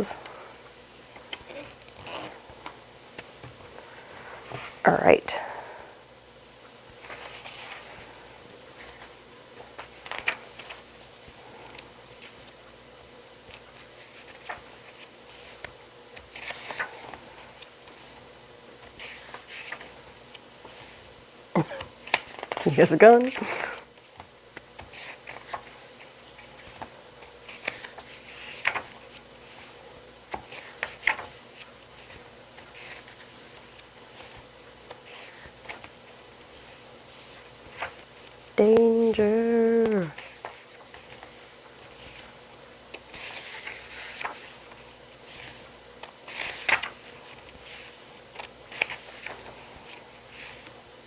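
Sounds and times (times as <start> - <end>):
paper pages rustling: 6.9 - 12.7, 13.4 - 21.1, 21.8 - 50.9.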